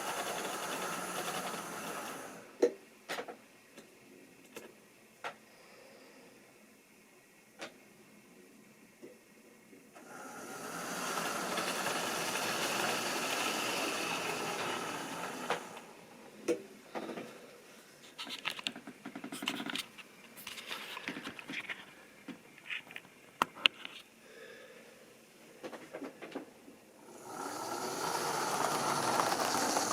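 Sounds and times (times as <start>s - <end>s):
model train motor whirring: 0.0s - 2.5s, 10.0s - 15.9s, 27.0s - 29.9s.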